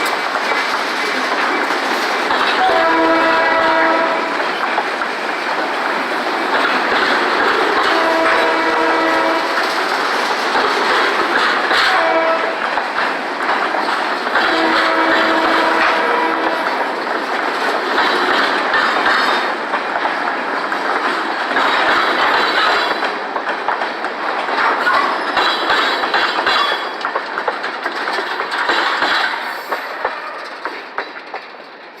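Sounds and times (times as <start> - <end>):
train wheels clicking on rails: 0.0 - 32.0
train horn blast: 2.6 - 4.3, 7.8 - 9.6, 11.8 - 12.6, 14.4 - 16.6.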